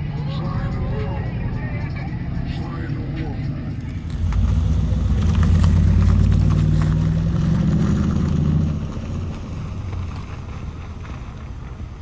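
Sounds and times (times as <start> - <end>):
deep vehicle engine running: 3.7 - 12.0.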